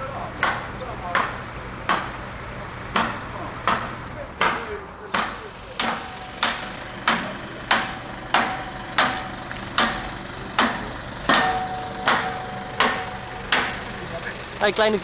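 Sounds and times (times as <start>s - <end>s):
hammer strikes ringing: 3.0s - 14.2s.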